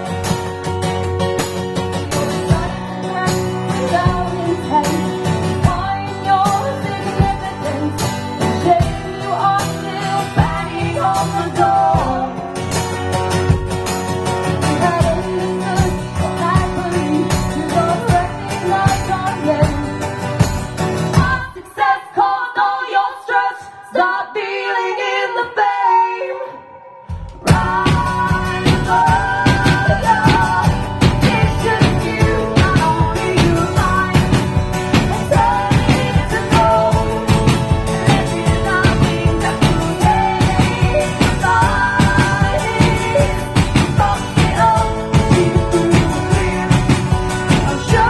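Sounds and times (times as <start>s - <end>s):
live band music: 0.0s - 21.5s, 27.1s - 48.0s
person singing: 2.0s - 13.0s, 14.4s - 20.1s, 21.2s - 48.0s.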